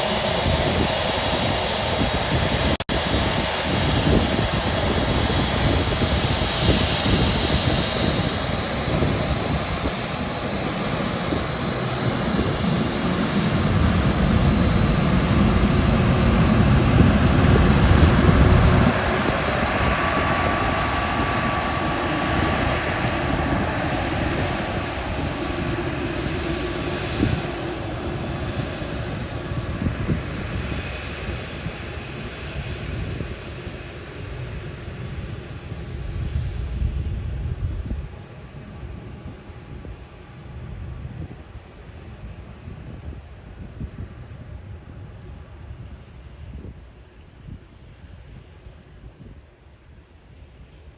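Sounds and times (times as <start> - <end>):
jet engines rumbling at takeoff: 0.0 - 50.9.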